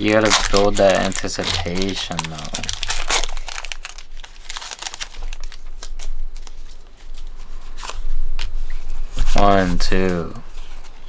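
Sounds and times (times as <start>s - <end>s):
cards being handled: 0.0s - 8.6s
foil wrapper crinkling: 0.0s - 10.8s.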